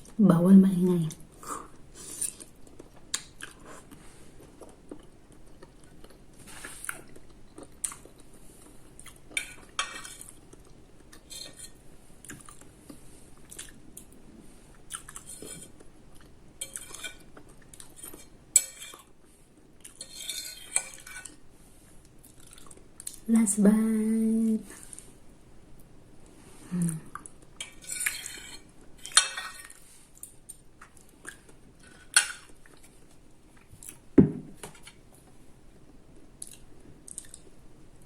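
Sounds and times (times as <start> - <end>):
chewing: 1.6 - 21.4, 22.0 - 23.2, 26.9 - 34.0, 36.2 - 37.6.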